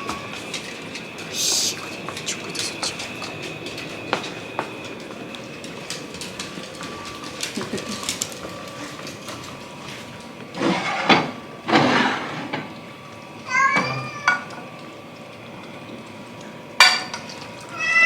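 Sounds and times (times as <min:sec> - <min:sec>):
rustling or scraping bursts: 0:09.9 - 0:12.5.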